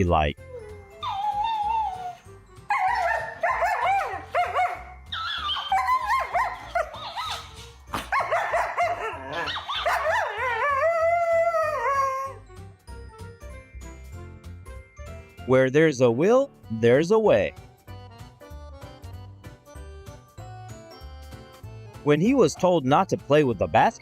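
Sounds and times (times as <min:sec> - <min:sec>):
dog yipping and barking: 0:01.0 - 0:12.1.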